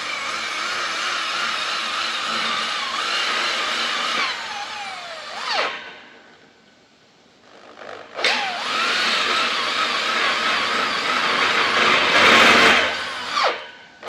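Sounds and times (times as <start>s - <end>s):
electric power tool running: 7.8s - 13.6s.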